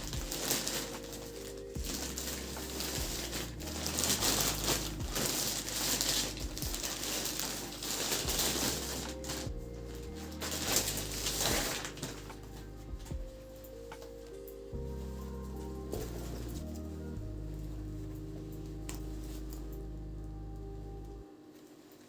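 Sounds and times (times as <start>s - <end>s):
crinkling and rustling: 0.0s - 22.0s
soft background music: 0.0s - 22.0s.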